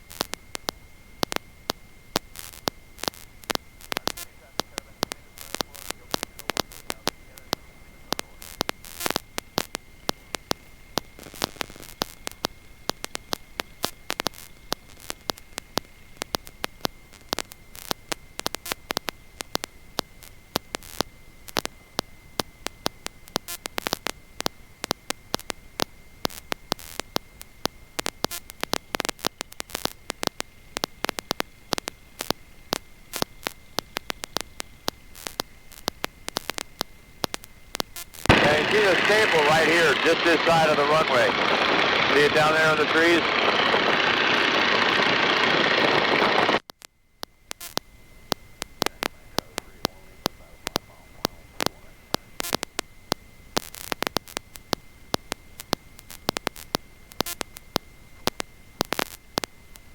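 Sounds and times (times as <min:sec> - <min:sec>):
crackling static with clicks: 0:00.0 - 0:59.9
high-pitched whine: 0:38.3 - 0:46.6.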